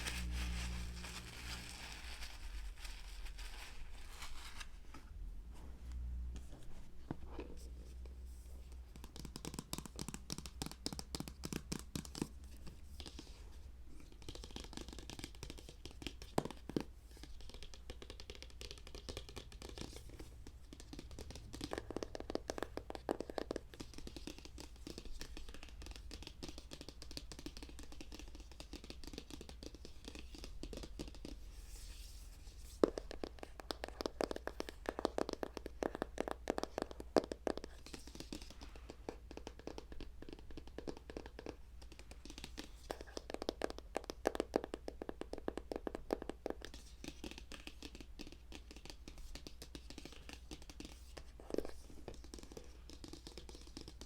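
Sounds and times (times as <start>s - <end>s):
objects crinkling and scratching: 0.0s - 5.1s.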